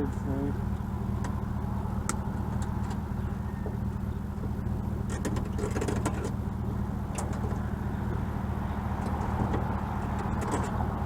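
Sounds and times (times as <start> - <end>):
vehicle engine droning: 0.0 - 11.0
sharp clicks and rattles: 0.7 - 8.3, 8.9 - 11.0.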